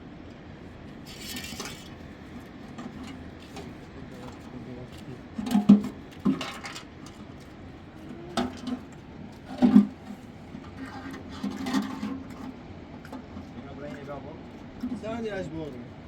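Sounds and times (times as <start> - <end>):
clattering scrapes: 10.7 - 12.5.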